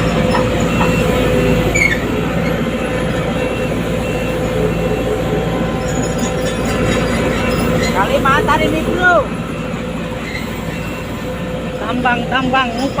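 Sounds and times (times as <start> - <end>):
excavator engine running: 0.0 - 13.0
short high squeal: 10.2 - 11.1.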